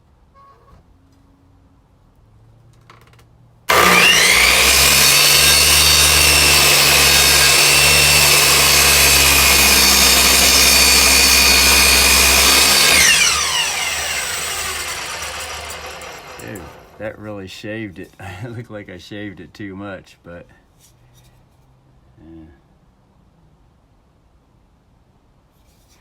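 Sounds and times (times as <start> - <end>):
electric miter saw whine: 3.7 - 17.0.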